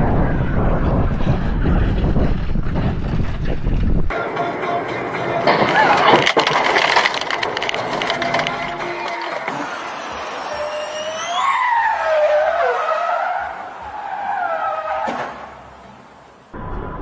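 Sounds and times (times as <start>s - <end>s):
car tyres squealing: 4.6s - 16.6s.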